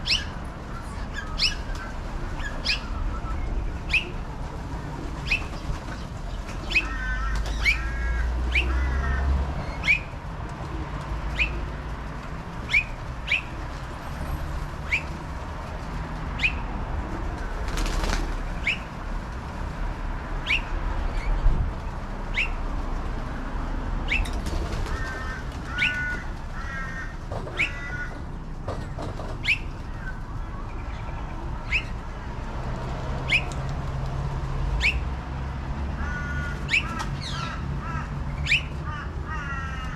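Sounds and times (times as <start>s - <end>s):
wings flapping: 17.3s - 19.5s, 24.2s - 28.0s.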